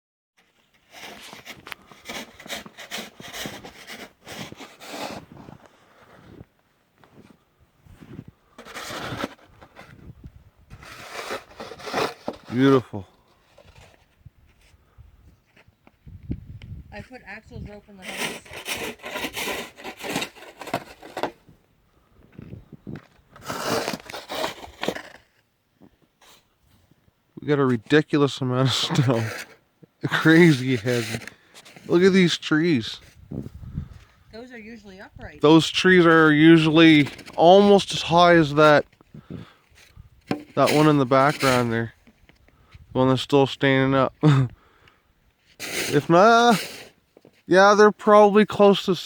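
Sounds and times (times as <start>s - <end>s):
footsteps crunching through wet snow: 0.8s - 9.9s.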